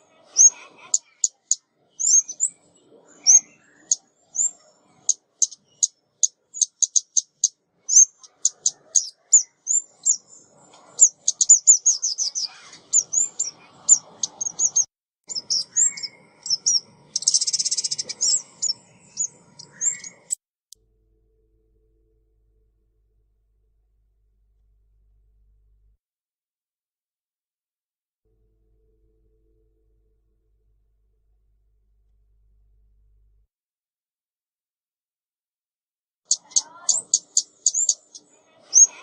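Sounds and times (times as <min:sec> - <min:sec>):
songbird chirping: 0:00.0 - 0:20.4, 0:36.3 - 0:39.0.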